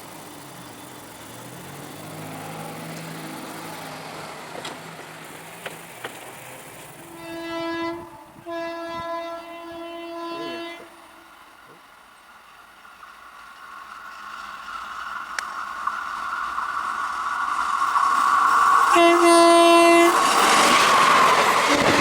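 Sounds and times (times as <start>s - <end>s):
train rumbling: 0.0s - 22.0s
train horn blasts: 7.1s - 11.3s, 18.9s - 20.2s.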